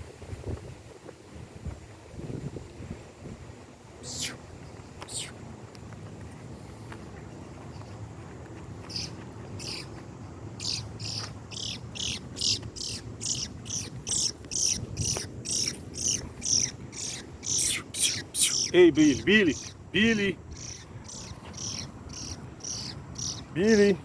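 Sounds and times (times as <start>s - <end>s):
bird chirping: 4.0s - 5.4s, 8.8s - 24.0s.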